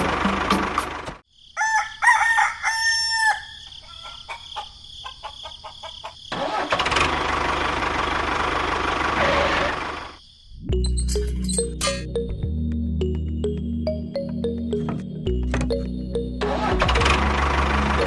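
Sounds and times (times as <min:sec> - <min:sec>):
rooster crowing: 0:01.6 - 0:06.2
small engine running: 0:06.4 - 0:10.2, 0:16.5 - 0:18.0.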